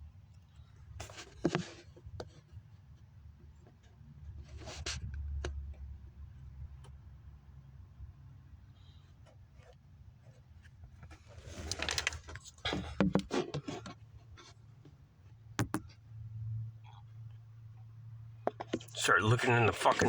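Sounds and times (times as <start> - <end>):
scraping and clicking handling: 9.3 - 14.9
low steady hum: 14.2 - 20.0.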